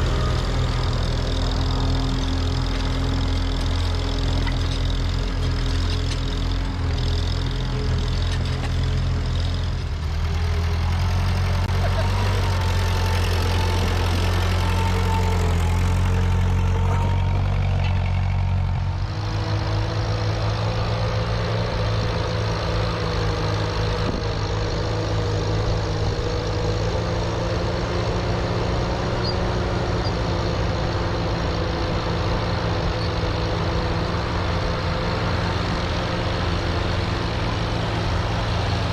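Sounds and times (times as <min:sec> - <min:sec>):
tractor engines running: 0:00.0 - 0:38.9.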